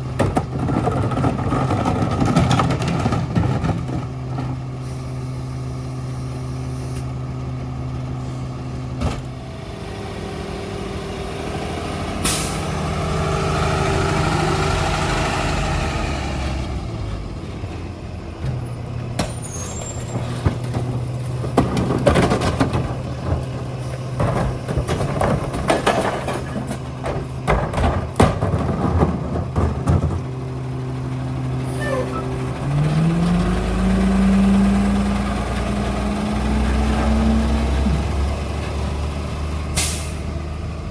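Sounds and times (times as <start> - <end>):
garbage truck diesel engine: 0.0 - 40.9
clanks and bangs: 18.5 - 30.3
air brake hiss: 39.8 - 40.2.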